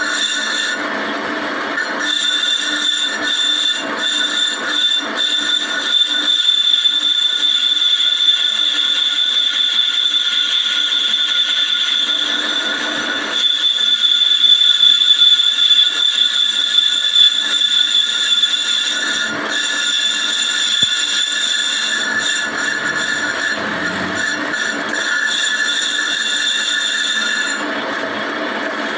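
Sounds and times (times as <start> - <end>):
lathe skimming a brake disc: 17.0 - 28.9.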